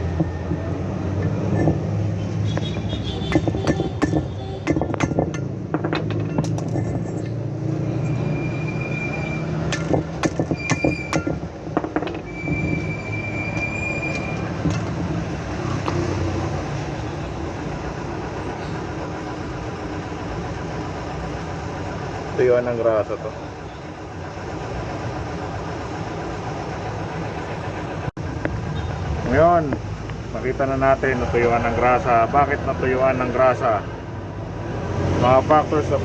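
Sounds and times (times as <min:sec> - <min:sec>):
high-pitched metallic squeaks: 0:00.0 - 0:11.5, 0:12.1 - 0:15.0
metal tools clinking: 0:01.1 - 0:02.1, 0:03.2 - 0:08.1.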